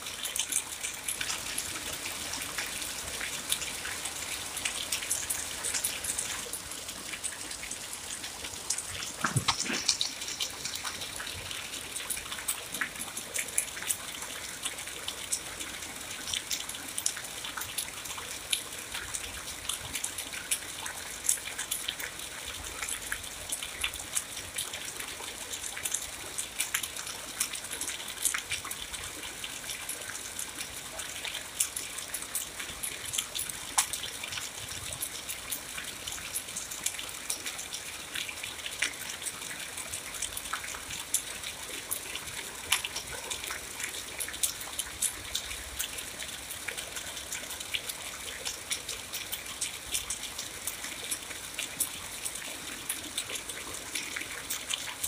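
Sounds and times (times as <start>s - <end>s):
steady rainfall: 0.0s - 55.0s
sharp raindrop hits: 8.6s - 11.3s.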